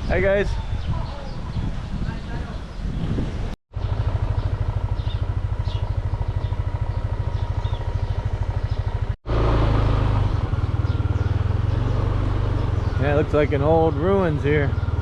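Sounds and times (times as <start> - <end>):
small motorbike engine idling: 3.7 - 15.0.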